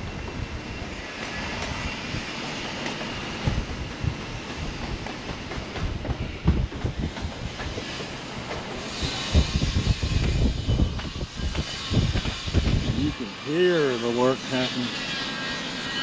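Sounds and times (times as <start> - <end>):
steady mechanical hiss: 7.3 - 16.0.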